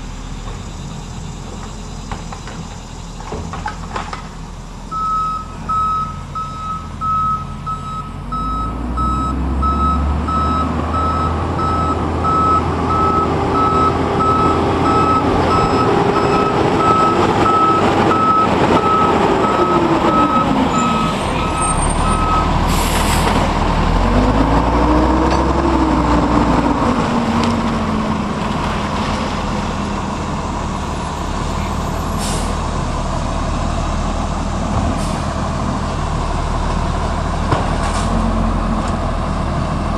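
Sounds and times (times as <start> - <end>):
diesel engine revving: 0.0 - 39.9
reverse alarm beeping: 4.9 - 22.5
air brake hiss: 22.7 - 23.4, 32.1 - 32.6.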